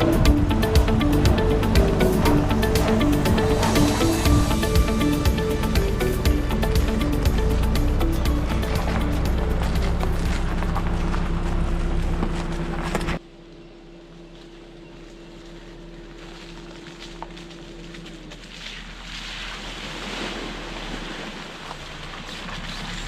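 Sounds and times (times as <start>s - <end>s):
background music: 0.0s - 11.2s
vehicle driving hum: 0.0s - 23.0s.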